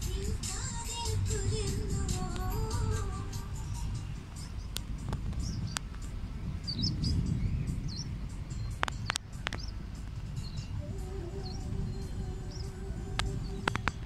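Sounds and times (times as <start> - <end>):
low steady rumble: 0.0 - 14.0
sharp clicks: 8.7 - 10.5.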